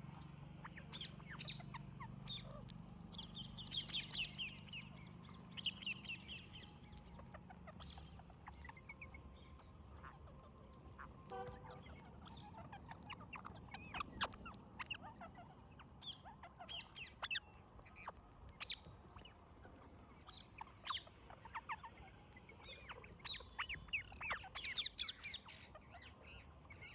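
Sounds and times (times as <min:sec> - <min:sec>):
parrots squawking and chirping: 0:00.2 - 0:26.9.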